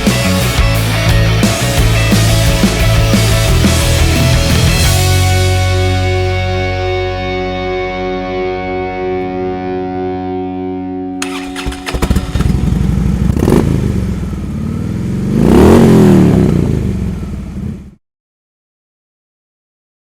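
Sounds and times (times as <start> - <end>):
motorcycle engine revving: 0.0 - 5.8, 11.2 - 18.0
held music tones: 0.0 - 13.4.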